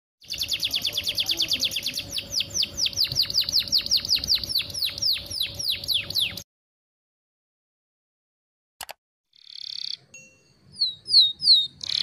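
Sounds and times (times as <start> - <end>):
canary singing: 0.2 - 6.4, 9.4 - 12.0.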